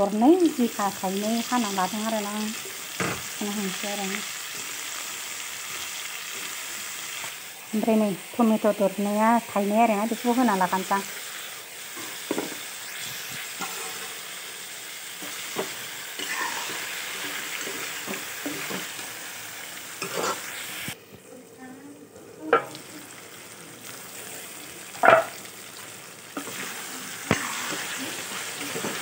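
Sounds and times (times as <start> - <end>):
food sizzling in a wok: 0.0 - 29.0
spoon knocking on pan: 12.3 - 12.6
metal spoon scraping pan: 16.2 - 16.9, 20.0 - 20.5.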